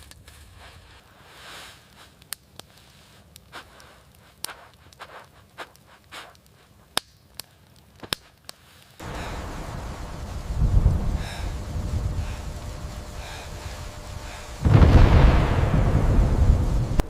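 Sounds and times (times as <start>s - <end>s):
wood fire crackling: 0.0s - 17.0s
loud wind noise: 9.0s - 17.0s.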